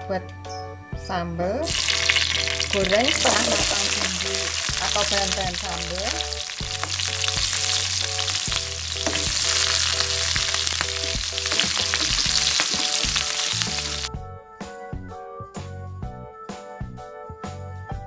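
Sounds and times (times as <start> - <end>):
background music: 0.0 - 18.0
vegetables sizzling in oil: 1.6 - 14.1.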